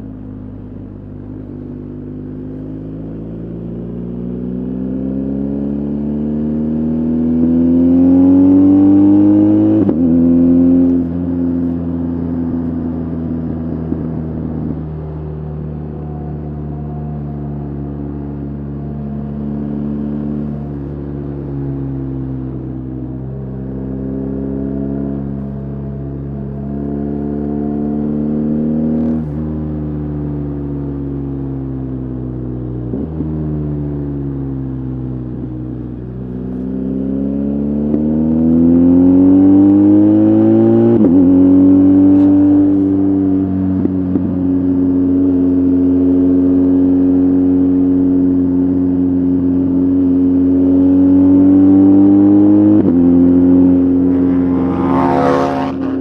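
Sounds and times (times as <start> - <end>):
motorcycle engine revving: 50.6 - 56.0.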